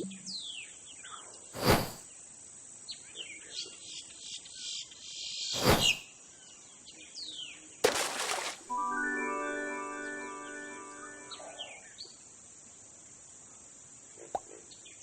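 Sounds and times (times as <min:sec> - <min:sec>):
bird chirps: 0:00.0 - 0:02.0, 0:09.8 - 0:12.2
loud whooshes: 0:01.6 - 0:02.0, 0:05.6 - 0:06.0.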